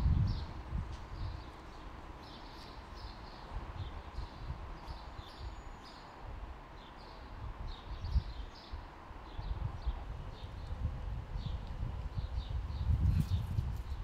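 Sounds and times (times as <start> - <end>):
small birds chirping: 0.2 - 6.2, 6.8 - 10.8.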